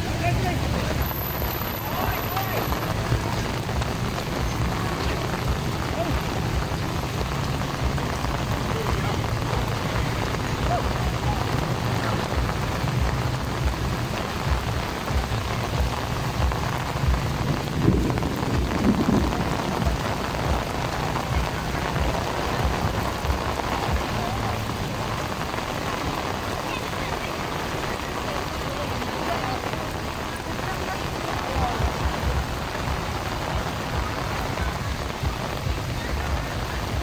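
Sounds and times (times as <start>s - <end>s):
heavy rain pouring: 0.0s - 37.0s
wind buffeting microphone: 2.6s - 26.6s.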